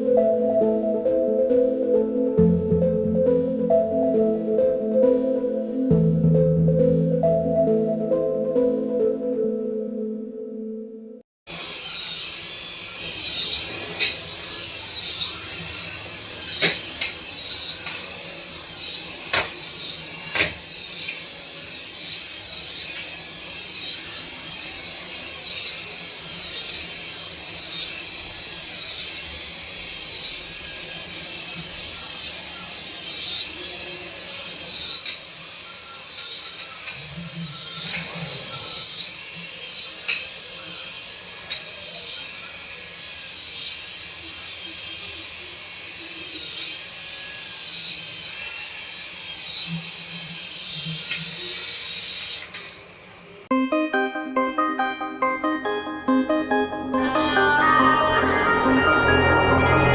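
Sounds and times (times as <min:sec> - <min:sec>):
toy electric motor whining: 0:11.5 - 0:53.5.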